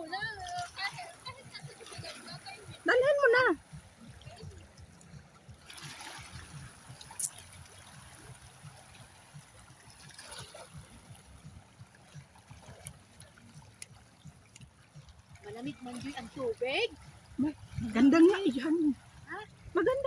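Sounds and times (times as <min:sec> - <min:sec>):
seawater trickling over rocks: 0:00.0 - 0:20.0.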